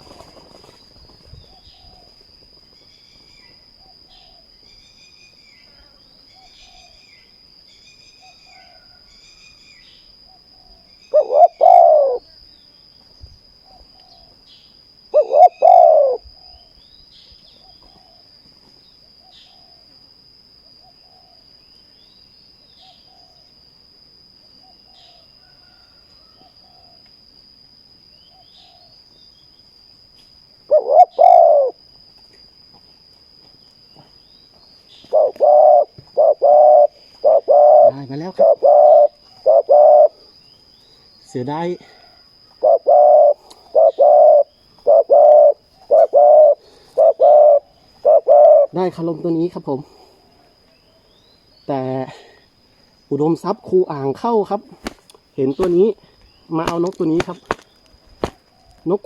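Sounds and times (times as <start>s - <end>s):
doves cooing: 10.3s - 12.3s, 15.1s - 16.5s, 30.7s - 31.8s, 35.0s - 40.4s, 41.3s - 51.1s
small birds chirping: 33.9s - 59.0s.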